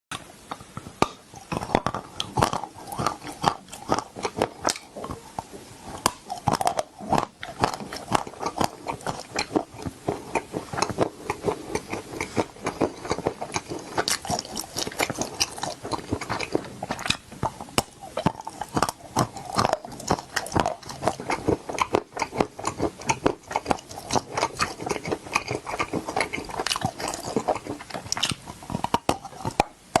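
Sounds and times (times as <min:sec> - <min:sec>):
person chewing crunchy food: 0:00.1 - 0:30.0.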